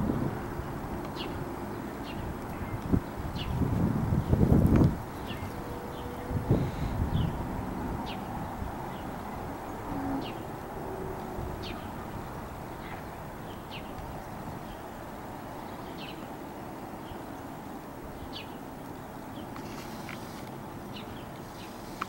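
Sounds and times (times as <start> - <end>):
small bird chirping: 4.2 - 7.4.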